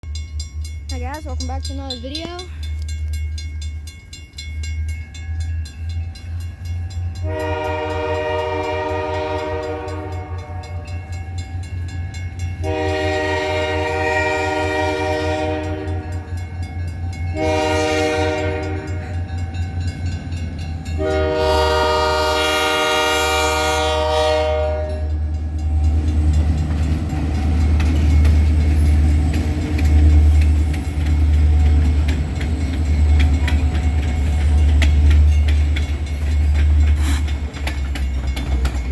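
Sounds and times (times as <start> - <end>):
locomotive horn blasts: 7.2 - 10.9, 12.6 - 16.3, 17.3 - 19.2, 21.0 - 25.3.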